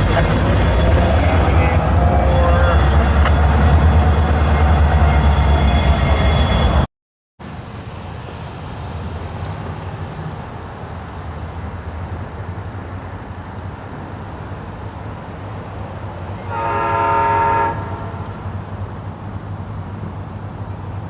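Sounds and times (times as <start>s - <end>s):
train low rumble: 0.0s - 21.0s
locomotive air horn blast: 16.4s - 18.6s.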